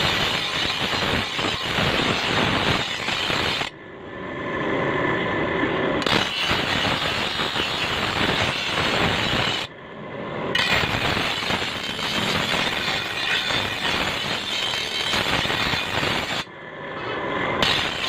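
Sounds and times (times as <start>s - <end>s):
rattling grating metalworking noise: 6.0s - 9.7s, 10.6s - 18.0s.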